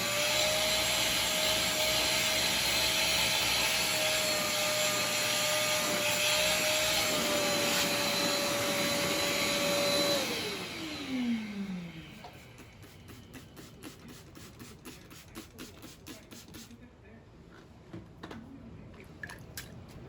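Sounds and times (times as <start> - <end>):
vacuum cleaner whining: 0.0 - 14.2.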